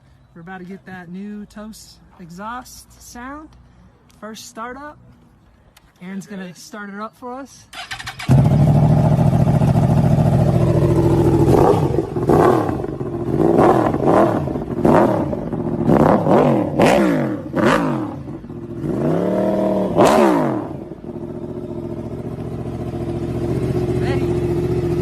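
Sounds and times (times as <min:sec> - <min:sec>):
motorcycle engine idling and revving: 0:07.7 - 0:25.0.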